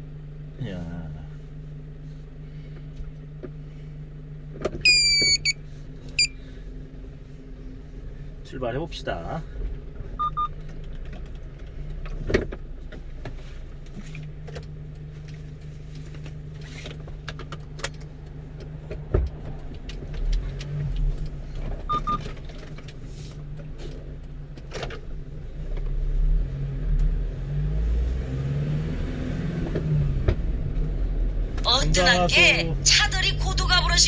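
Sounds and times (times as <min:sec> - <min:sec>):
truck engine accelerating: 0:25.5 - 0:34.0.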